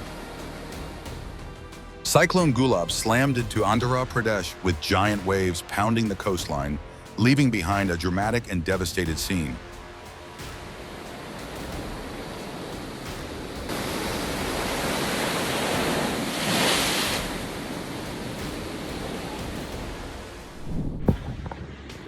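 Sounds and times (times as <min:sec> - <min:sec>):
storm surf roaring: 0:09.0 - 0:21.5.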